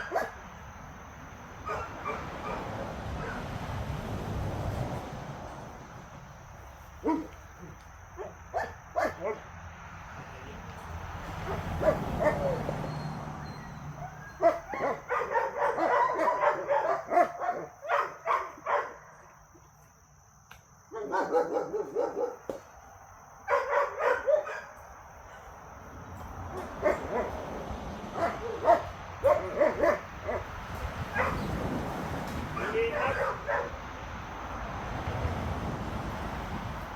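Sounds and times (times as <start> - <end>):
dogs barking: 0.0 - 0.5, 1.6 - 3.5, 7.0 - 9.5, 11.3 - 19.2, 20.9 - 22.5, 23.5 - 24.8, 26.4 - 31.7, 32.5 - 33.9.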